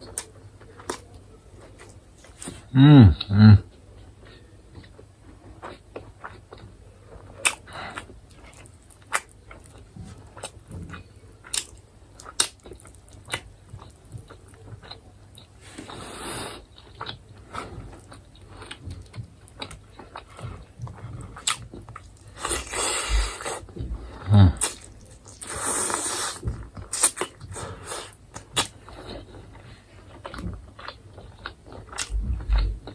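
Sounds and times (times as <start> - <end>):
chewing and biting chicken: 4.0 - 32.9.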